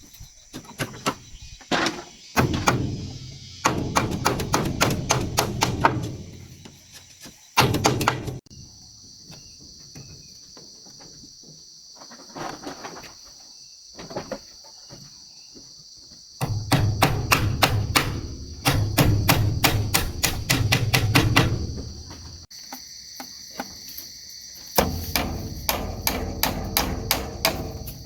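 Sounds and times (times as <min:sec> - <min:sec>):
insects buzzing: 0:00.0 - 0:28.0
rapid knocking: 0:16.4 - 0:22.4, 0:24.8 - 0:28.0.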